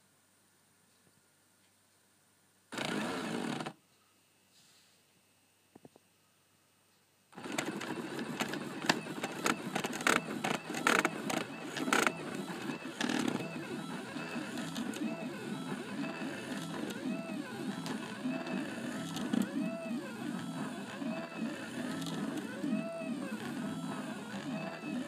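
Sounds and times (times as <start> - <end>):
stepper motors whining: 7.4 - 25.0.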